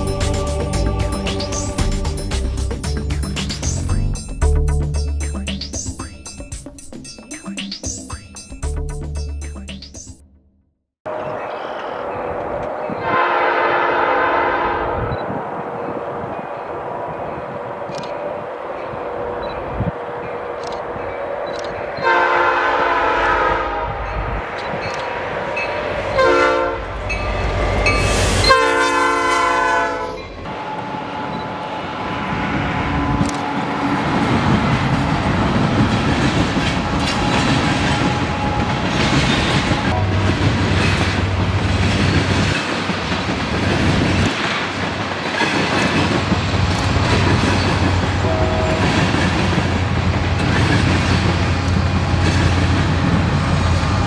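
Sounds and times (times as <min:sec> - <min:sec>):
locomotive air horn: 0:11.1 - 0:15.2, 0:22.0 - 0:24.2, 0:25.5 - 0:40.4, 0:48.2 - 0:49.1
diesel engine drone: 0:30.4 - 0:41.9
train wheels clicking over rails: 0:30.4 - 0:54.0.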